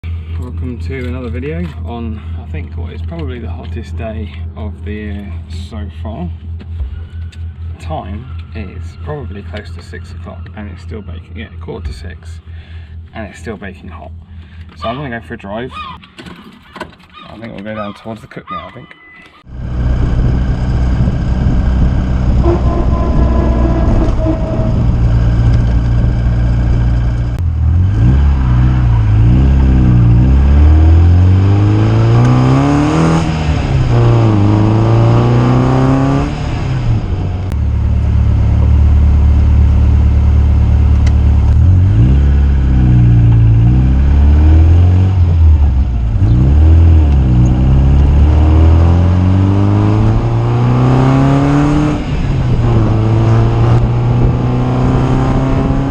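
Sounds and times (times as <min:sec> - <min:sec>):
car engine revving: 0:19.5 - 0:55.9.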